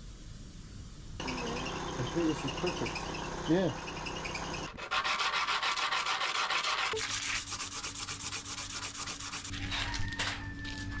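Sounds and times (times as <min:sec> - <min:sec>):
ring scrubbing: 0:02.4 - 0:09.6.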